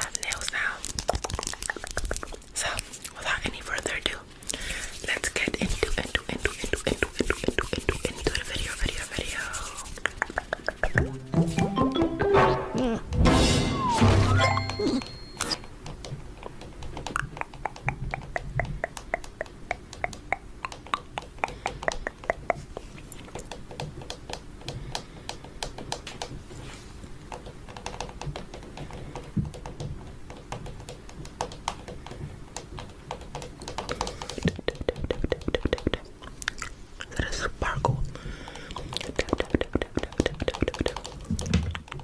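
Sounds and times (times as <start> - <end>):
fingernails tapping on camera: 15.9 - 22.6, 27.4 - 36.1.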